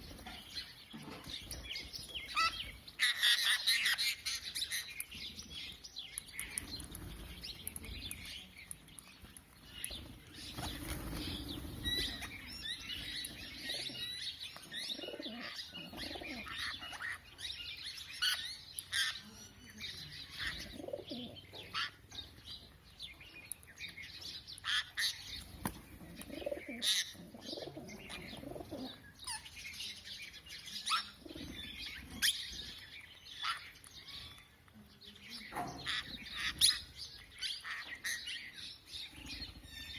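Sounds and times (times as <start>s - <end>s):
birds chirping: 0.0s - 39.9s
wings flapping: 10.4s - 12.3s.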